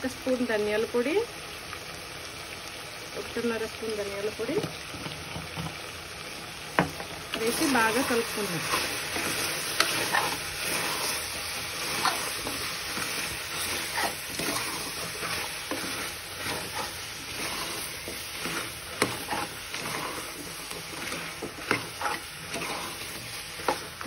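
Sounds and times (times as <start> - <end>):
meat sizzling in oil: 0.0 - 24.0
metal spoon scraping pot: 7.4 - 24.0.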